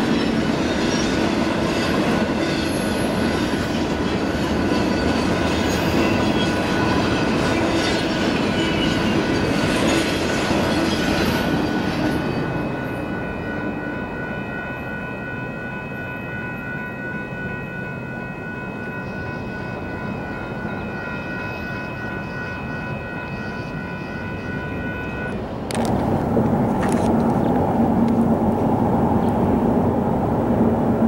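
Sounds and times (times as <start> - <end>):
train wheels on rails: 0.0 - 31.0
high-pitched ringing tones: 10.3 - 25.5.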